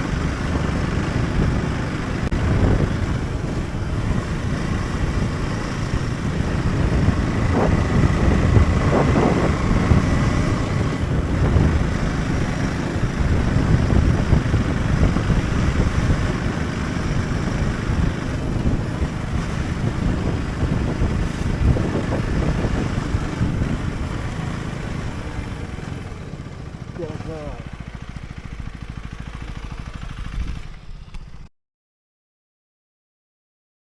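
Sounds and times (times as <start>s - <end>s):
wind buffeting microphone: 0.0s - 26.6s
motorcycle engine running: 0.0s - 31.5s.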